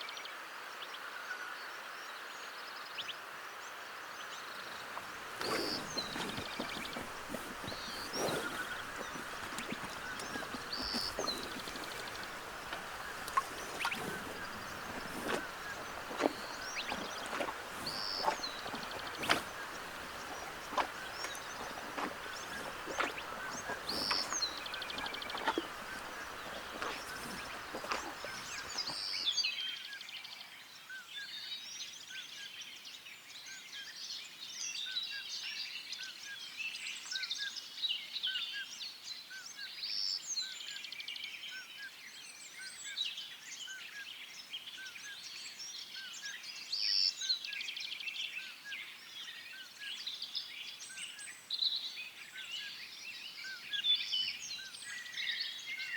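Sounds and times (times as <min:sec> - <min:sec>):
birds chirping chorus: 0:04.5 - 0:29.4.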